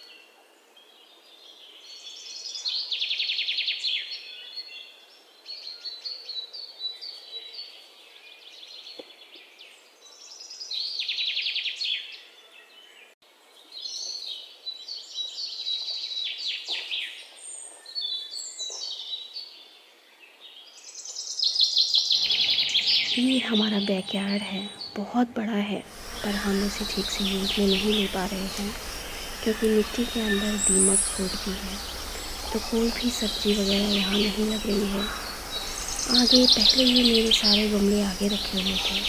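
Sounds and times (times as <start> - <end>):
birds singing and chirping: 22.0 - 39.0.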